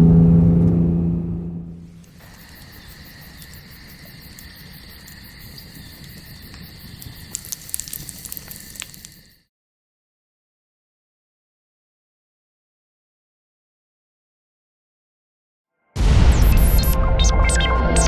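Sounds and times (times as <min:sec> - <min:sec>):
car engine: 0:00.0 - 0:02.3
insects trilling: 0:01.8 - 0:09.4
sharp crackling clicks: 0:01.9 - 0:09.4.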